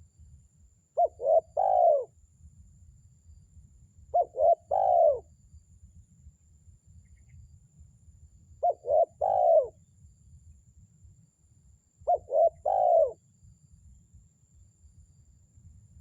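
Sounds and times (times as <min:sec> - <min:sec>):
dove cooing: 0:01.0 - 0:02.1, 0:04.1 - 0:05.2, 0:08.6 - 0:09.7, 0:12.1 - 0:13.2.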